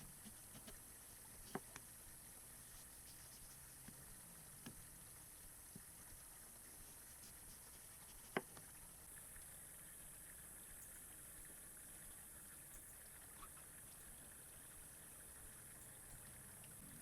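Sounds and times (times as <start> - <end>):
faint steady hiss: 0.0 - 17.0
faint ticks: 12.3 - 17.0.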